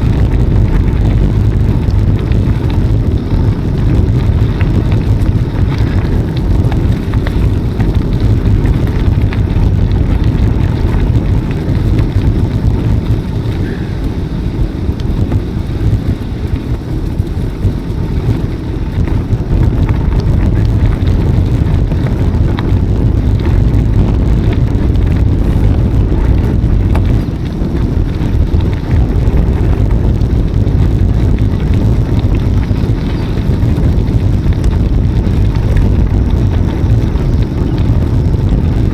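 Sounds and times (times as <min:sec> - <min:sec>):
bicycle tyres on path: 0:00.0 - 0:38.9
wind buffeting microphone: 0:00.0 - 0:38.9.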